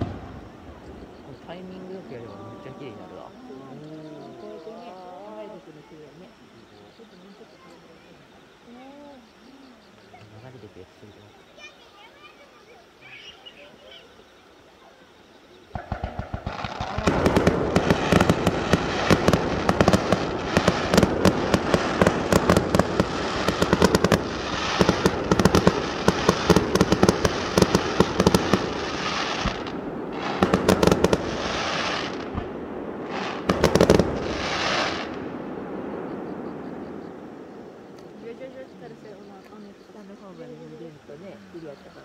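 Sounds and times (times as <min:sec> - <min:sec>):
fireworks bangs and crackling: 0:00.0 - 0:03.5, 0:15.7 - 0:38.4.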